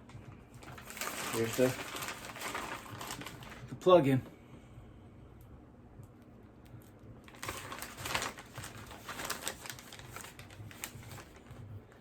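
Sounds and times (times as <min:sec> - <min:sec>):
plastic packaging rustling: 0:00.0 - 0:03.9, 0:07.2 - 0:12.0.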